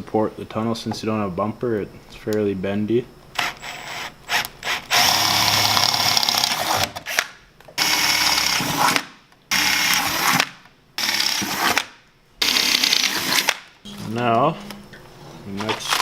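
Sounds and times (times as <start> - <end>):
power drill running: 3.4 - 7.2, 7.8 - 11.8, 12.4 - 13.6.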